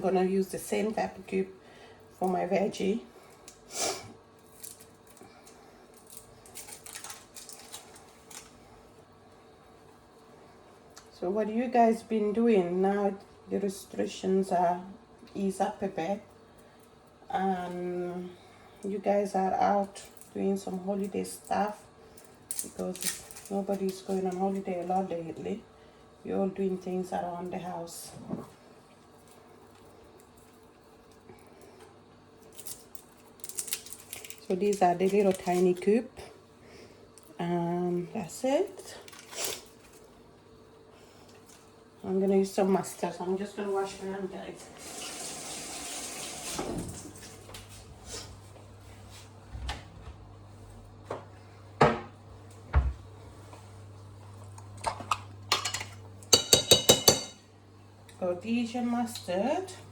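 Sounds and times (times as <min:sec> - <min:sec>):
faint steady hum: 0:00.0 - 0:45.0
dishes and utensils clattering: 0:54.9 - 0:57.4
metal clinking against dishware: 0:55.5 - 0:57.4.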